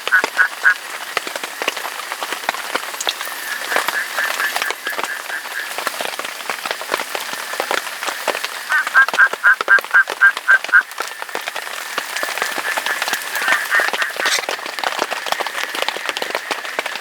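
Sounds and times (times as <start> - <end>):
rain drops pattering: 0.0 - 17.0.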